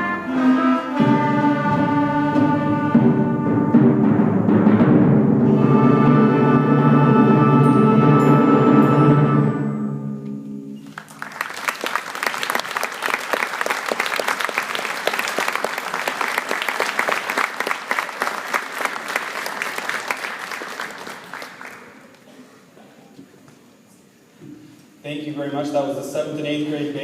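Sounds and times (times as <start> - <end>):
concert band chord: 0.0 - 10.9
audience applause: 10.8 - 22.2.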